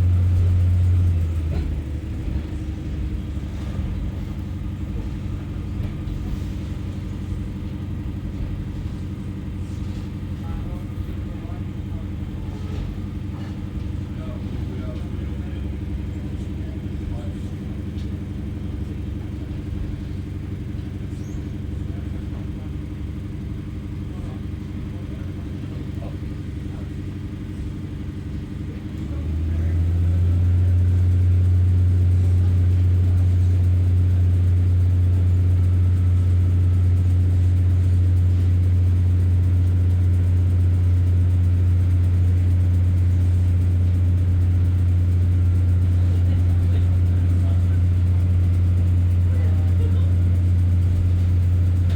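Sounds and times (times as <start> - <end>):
diesel train engine drone: 0.0 - 51.9.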